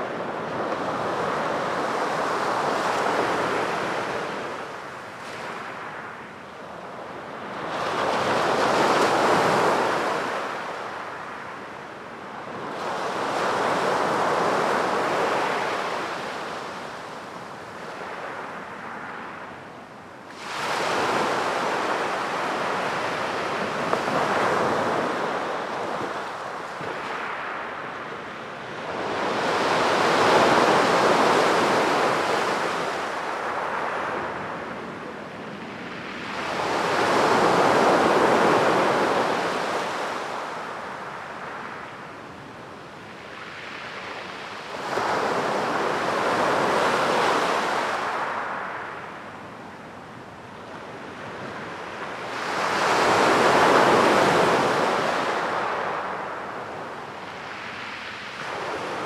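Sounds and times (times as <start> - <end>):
sea waves breaking on beach: 35.5 - 41.9, 43.3 - 49.0, 52.1 - 59.0.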